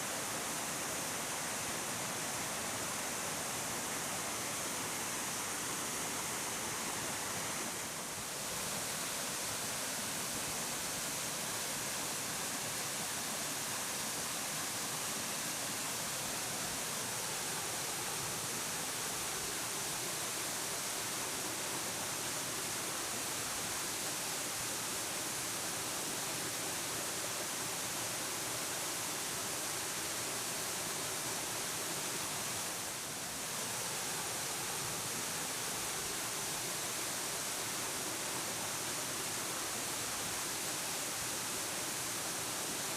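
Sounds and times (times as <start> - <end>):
waterfall rushing: 26.1 - 42.9.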